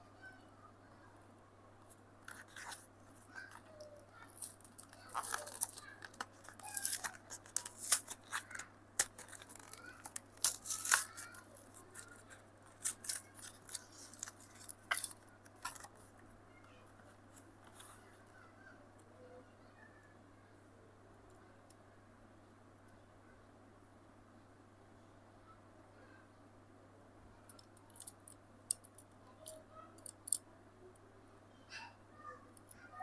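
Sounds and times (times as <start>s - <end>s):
packaging being snipped and torn: 4.2s - 15.9s.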